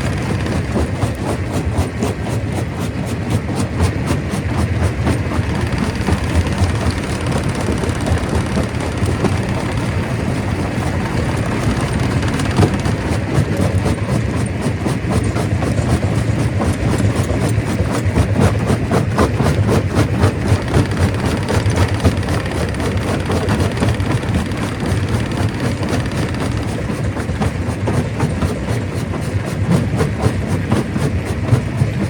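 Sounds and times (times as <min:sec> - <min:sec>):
stone crusher running: 0:00.0 - 0:32.0.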